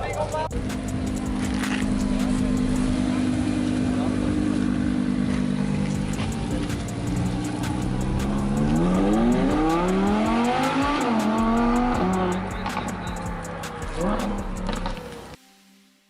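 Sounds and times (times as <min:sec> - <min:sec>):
sports car engine accelerating: 0:00.2 - 0:15.2.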